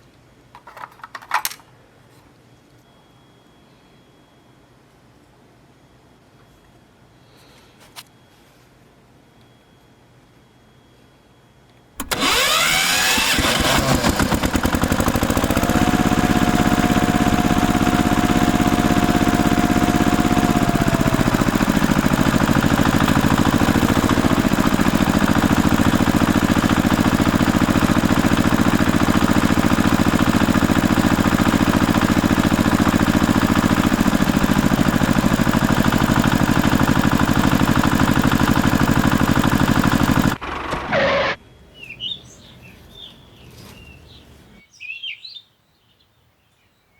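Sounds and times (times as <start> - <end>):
engine running steadily: 12.0 - 41.4.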